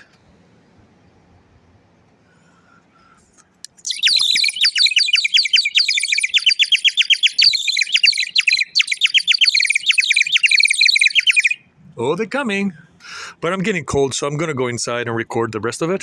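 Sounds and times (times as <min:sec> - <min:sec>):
bird-call whistle warbling trill: 0:03.8 - 0:11.7.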